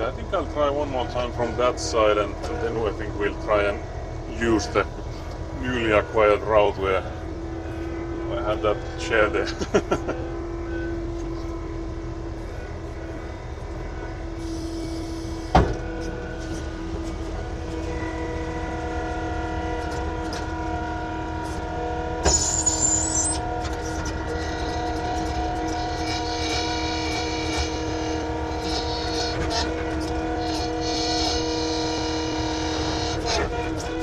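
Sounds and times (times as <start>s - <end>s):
earthmoving machine engine running: 0.0s - 34.0s
brief high whine: 7.7s - 29.6s.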